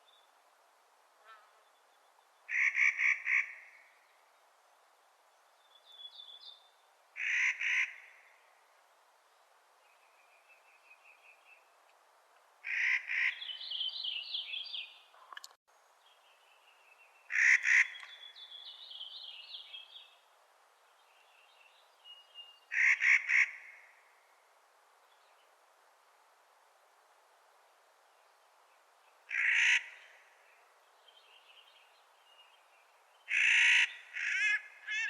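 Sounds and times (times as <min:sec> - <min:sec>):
nutcracker harsh grating calls: 0:33.3 - 0:35.0.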